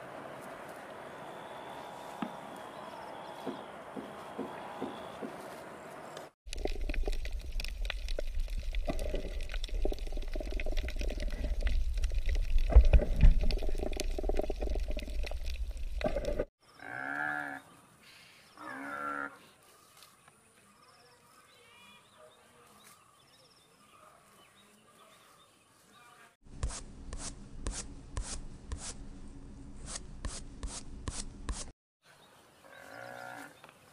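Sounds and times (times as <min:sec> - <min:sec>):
small underwater clicks: 0:06.5 - 0:16.5
underwater rumble of moving water: 0:06.5 - 0:16.5.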